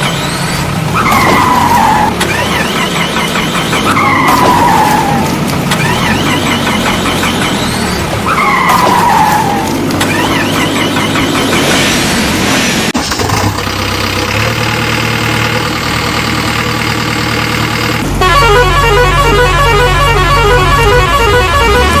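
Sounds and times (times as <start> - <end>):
cartoon engine hum: 0.0 - 12.1, 13.8 - 22.0
rapidly repeating pitched tones: 2.1 - 4.6, 5.7 - 8.8
horn-like tones: 18.2 - 22.0.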